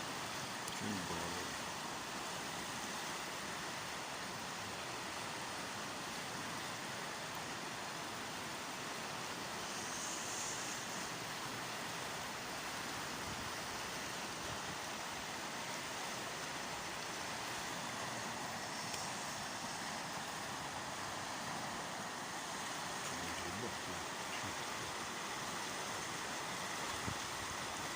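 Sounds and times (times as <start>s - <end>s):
river water rushing: 0.0s - 27.9s.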